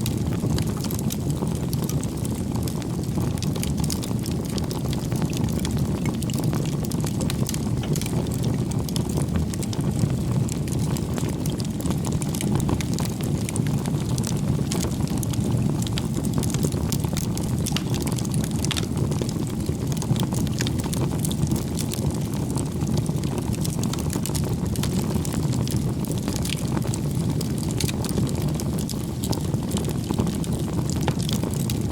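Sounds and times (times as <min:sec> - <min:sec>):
campfire crackling: 0:00.0 - 0:31.9.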